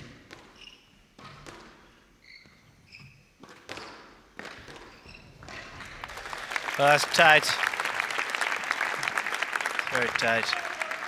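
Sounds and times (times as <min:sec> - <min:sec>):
shoes squeaking on court floor: 0:00.0 - 0:06.0.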